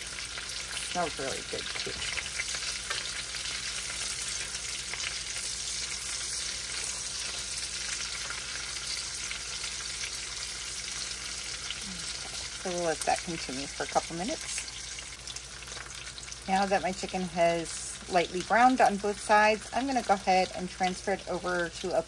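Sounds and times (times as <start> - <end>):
chicken sizzling in hot oil: 0.0 - 22.0
fork turning food in pan: 1.6 - 10.2.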